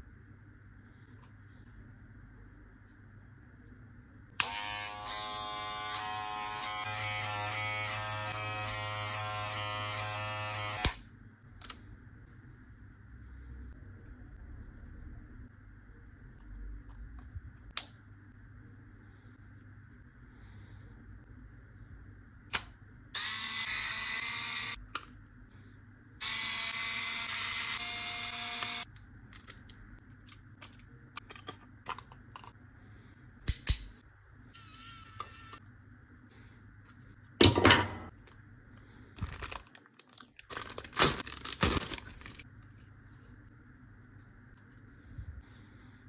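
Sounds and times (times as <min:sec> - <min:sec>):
small motorized tool whirring: 0:26.2 - 0:28.9
clicks and knocks of parts: 0:28.9 - 0:32.6.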